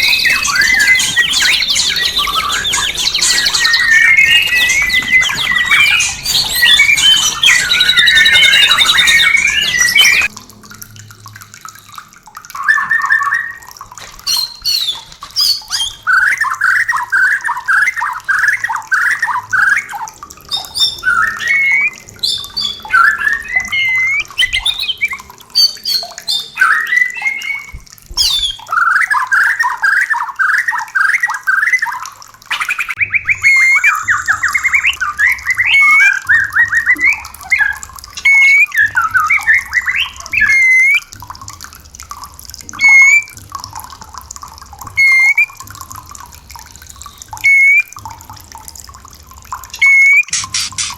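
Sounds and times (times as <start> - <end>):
bird chattering: 0.0 - 10.3, 49.8 - 50.9
bird song: 0.0 - 10.3, 12.6 - 41.1, 42.7 - 43.3, 46.8 - 48.0.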